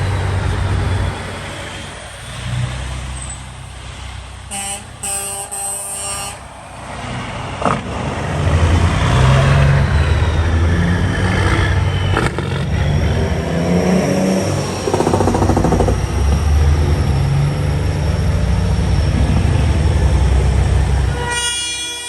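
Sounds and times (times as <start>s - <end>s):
vehicle engine running: 0.0s - 5.1s, 6.4s - 21.2s
horn blasts: 4.5s - 6.6s, 20.7s - 22.0s.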